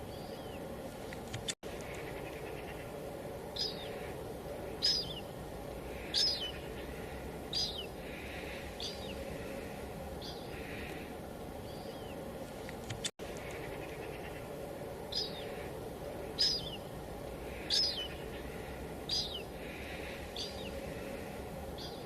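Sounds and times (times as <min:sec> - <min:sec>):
bird chirping: 0:00.0 - 0:22.0.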